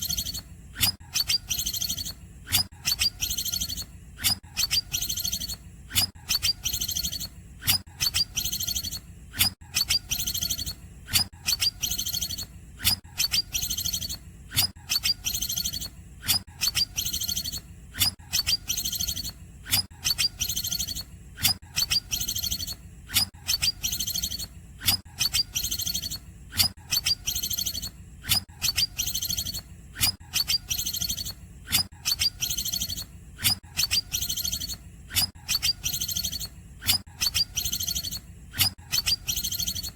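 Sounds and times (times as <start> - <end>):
bird singing high trills: 0.0 - 0.4, 1.1 - 2.2, 2.8 - 3.9, 4.6 - 5.6, 6.3 - 7.3, 8.0 - 9.0, 9.8 - 10.8, 11.5 - 12.5, 13.2 - 14.2, 14.9 - 15.9, 16.6 - 17.6, 18.3 - 19.4, 20.0 - 21.1, 21.8 - 22.8, 23.5 - 24.5, 25.2 - 26.2, 26.9 - 27.9, 28.6 - 29.6, 30.3 - 33.1, 33.8 - 36.5, 37.2 - 39.9.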